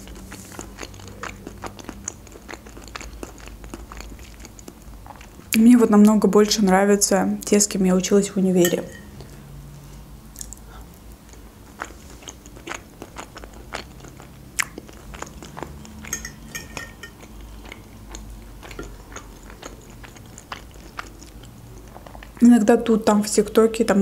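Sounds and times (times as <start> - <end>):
person chewing crunchy food: 0.0 - 5.6, 10.4 - 22.4
fork clinking on plate: 8.6 - 9.1, 16.0 - 17.3.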